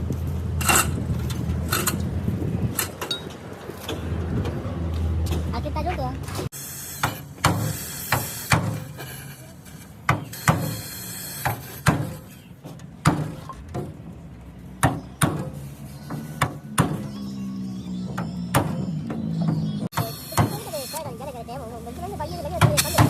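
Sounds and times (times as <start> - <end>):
hammer strikes: 14.8 - 17.2.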